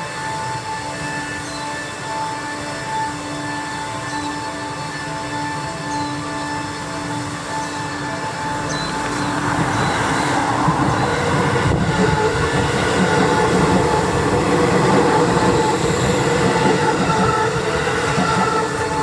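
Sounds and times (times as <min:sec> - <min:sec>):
thin whining tones: 0:00.0 - 0:19.0
train wheels rumbling on rails: 0:04.8 - 0:19.0.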